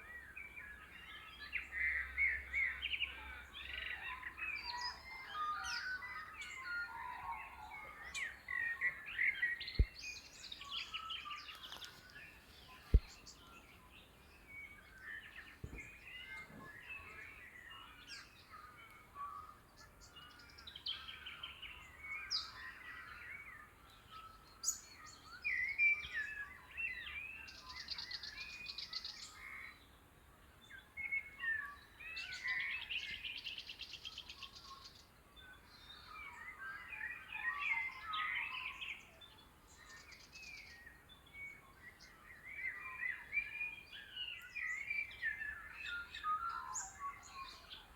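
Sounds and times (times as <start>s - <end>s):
birds chirping and calling: 3.9s - 18.8s.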